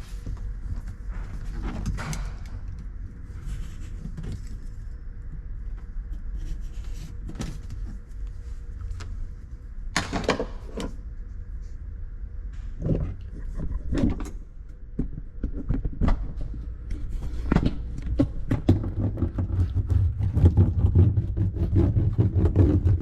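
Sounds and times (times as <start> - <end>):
low rumble: 10.6 - 23.0.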